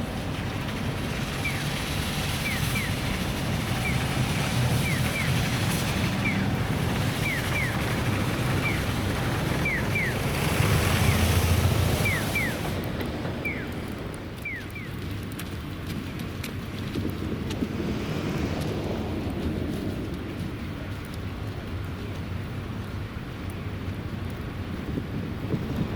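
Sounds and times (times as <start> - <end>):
brooms sweeping snow rushing: 0.0 - 13.7.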